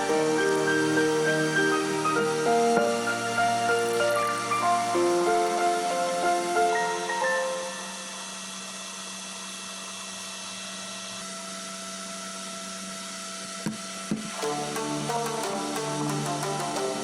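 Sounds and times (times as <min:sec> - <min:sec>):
cooling fans whirring: 0:00.0 - 0:17.0.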